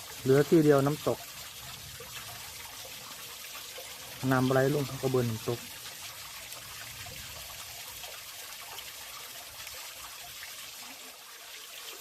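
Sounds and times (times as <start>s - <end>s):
water trickling down rocks: 0.0s - 12.0s.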